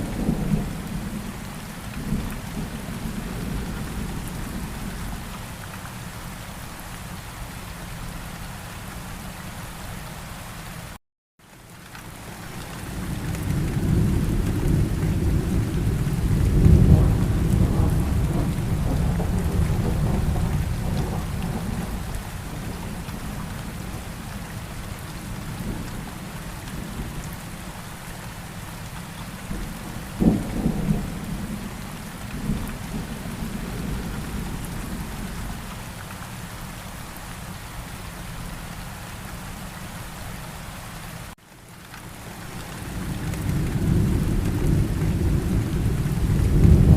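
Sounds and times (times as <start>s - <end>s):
thunder rumbling: 0.0s - 5.2s, 12.9s - 27.3s, 29.5s - 35.6s, 42.8s - 46.9s
steady rain falling: 0.0s - 46.9s
sharp thunderclap: 13.8s - 22.0s, 43.4s - 46.9s.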